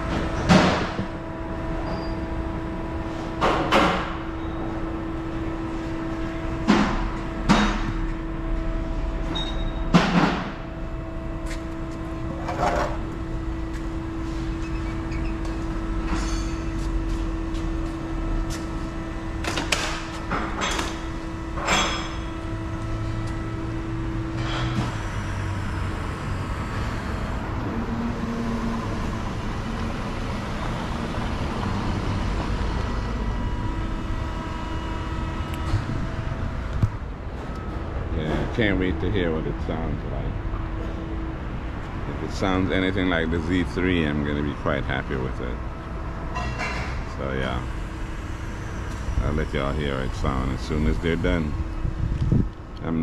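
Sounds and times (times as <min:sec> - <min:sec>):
sharp knocks and clanks: 0:00.0 - 0:01.2, 0:03.4 - 0:04.3, 0:06.6 - 0:08.2, 0:09.3 - 0:10.6
steady hum: 0:00.0 - 0:53.0.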